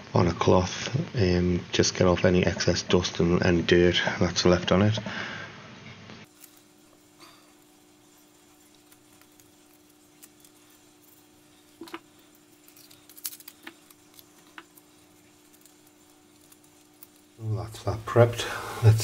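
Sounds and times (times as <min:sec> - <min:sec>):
steady low hum: 0:00.0 - 0:19.0
tape crackling and clicking: 0:06.2 - 0:19.0.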